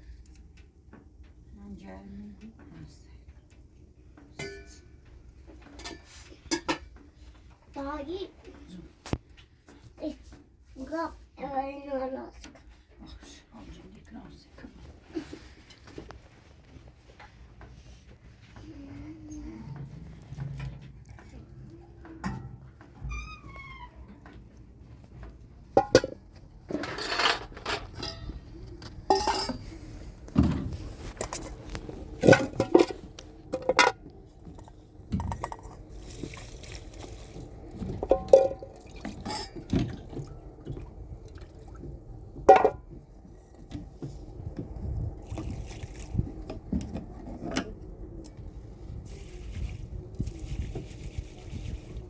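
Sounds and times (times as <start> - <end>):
water splashing and pouring: 35.7 - 41.8, 45.2 - 46.5.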